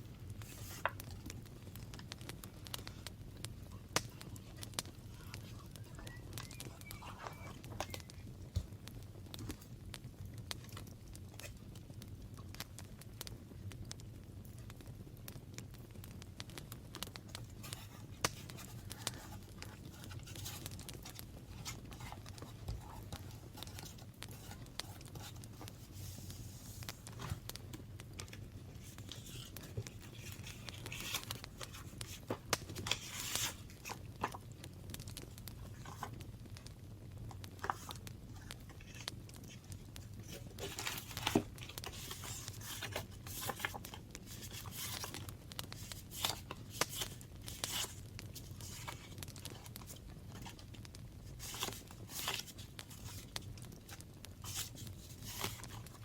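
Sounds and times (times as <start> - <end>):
paper rustling and crinkling: 0.4 - 2.1, 4.1 - 8.7, 17.2 - 34.6, 35.5 - 36.2, 37.3 - 56.0.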